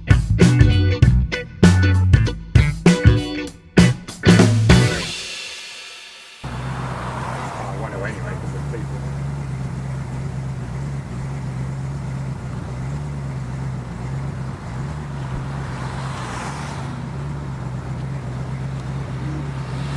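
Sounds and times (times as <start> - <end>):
engine idling: 6.4 - 19.9.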